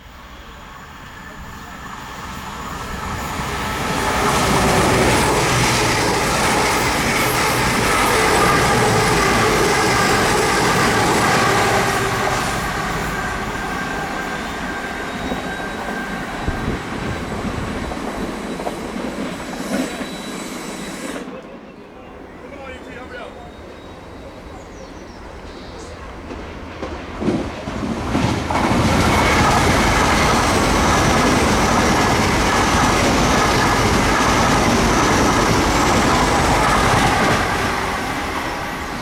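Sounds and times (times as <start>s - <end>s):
train passing: 0.0s - 39.0s.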